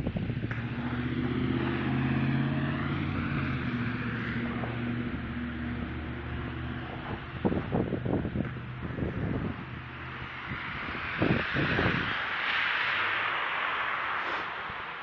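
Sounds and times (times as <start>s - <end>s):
engine running: 0.0s - 14.5s
hiss: 11.2s - 15.0s.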